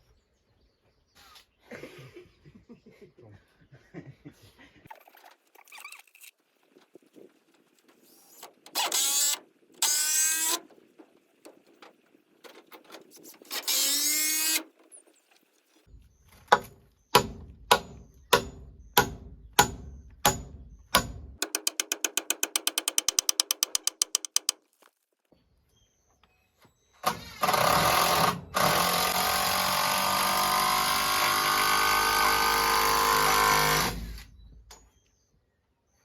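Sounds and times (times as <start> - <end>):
power drill spinning: 8.2 - 10.6, 27.0 - 34.4
hammer striking with metallic ring: 16.5 - 24.5
rapid even clicking: 20.9 - 24.6.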